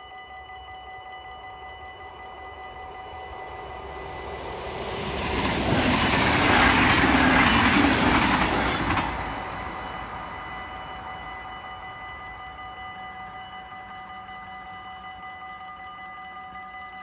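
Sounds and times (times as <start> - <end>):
crossing warning bell ringing: 0.0 - 17.0
train wheels rushing on rail: 1.9 - 15.1.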